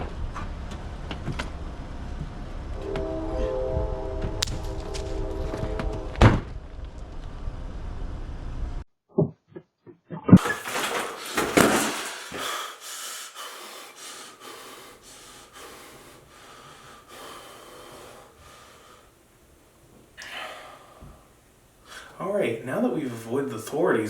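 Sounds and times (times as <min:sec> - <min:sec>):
person panting hard: 0:11.8 - 0:19.1.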